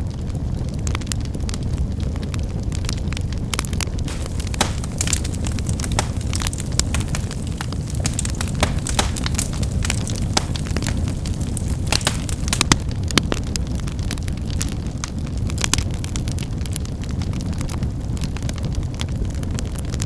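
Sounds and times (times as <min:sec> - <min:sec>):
low rumble of flames: 0:04.0 - 0:17.2
firewood crackling and snapping: 0:04.1 - 0:12.9.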